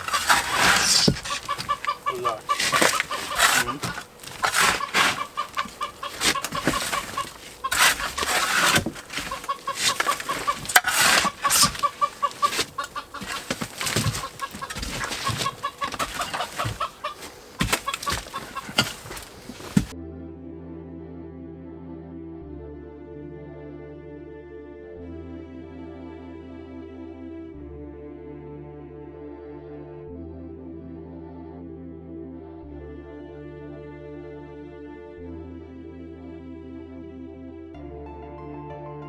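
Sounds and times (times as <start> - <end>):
rapid clucking-like pulses: 0.0 - 19.9
tools knocking and scraping concrete: 0.0 - 19.9.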